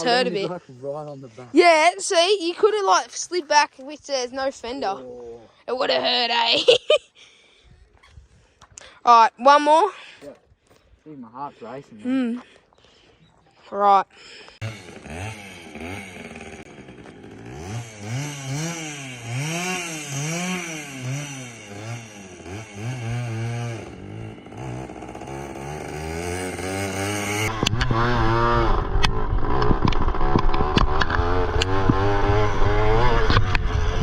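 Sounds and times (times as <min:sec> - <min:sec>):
pit bike engine revving: 0:14.6 - 0:34.0.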